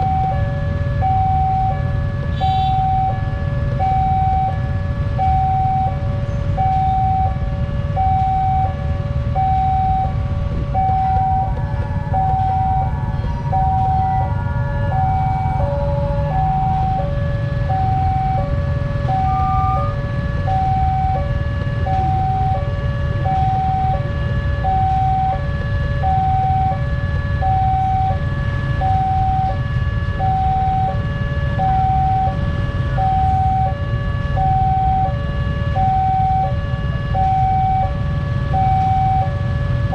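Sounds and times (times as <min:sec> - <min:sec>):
low rumble: 0:02.8 - 0:35.0
level crossing bell two-tone signal: 0:19.1 - 0:20.0.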